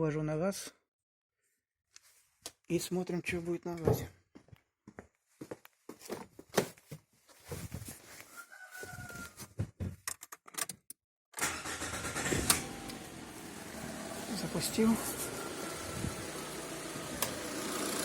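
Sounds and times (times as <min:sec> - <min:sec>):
car engine starting and running: 0:11.4 - 0:18.0.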